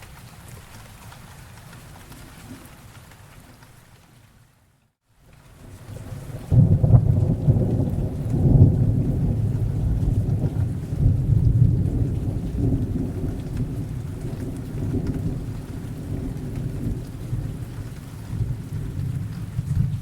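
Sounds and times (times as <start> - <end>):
rain falling: 0.0 - 20.0
deep roll of thunder: 5.6 - 20.0.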